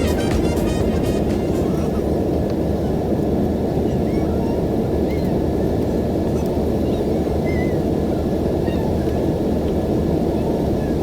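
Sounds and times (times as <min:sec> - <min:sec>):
airliner cabin rumble: 0:00.0 - 0:04.6.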